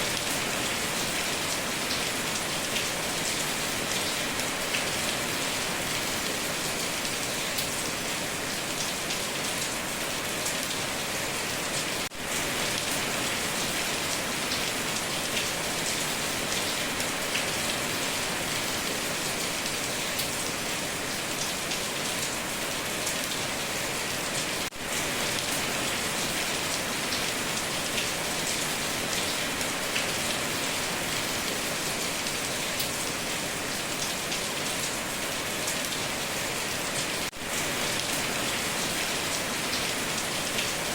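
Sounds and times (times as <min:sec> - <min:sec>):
heavy rain on a tin roof: 0:00.0 - 0:40.9.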